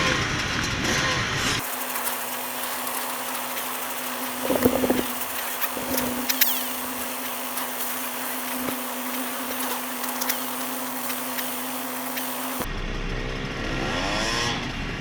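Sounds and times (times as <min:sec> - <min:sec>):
knocks and rattles: 0:01.6 - 0:12.6
constant hiss: 0:01.6 - 0:12.7
dirt bike engine idling: 0:01.6 - 0:13.2.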